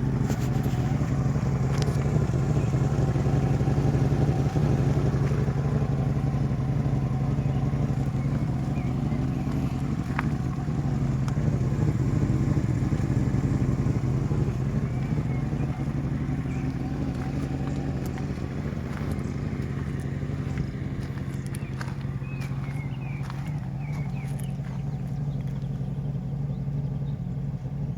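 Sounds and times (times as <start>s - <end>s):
car engine running: 0.0s - 27.9s.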